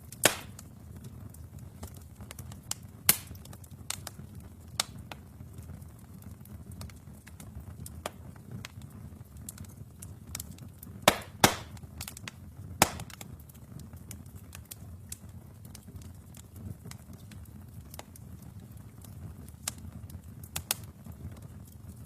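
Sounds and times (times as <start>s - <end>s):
fire crackling snaps: 0.0s - 22.0s
low rumble of flames: 0.0s - 22.0s
loud sharp pops: 0.2s - 0.6s, 3.1s - 3.5s, 11.0s - 12.1s, 12.8s - 13.2s.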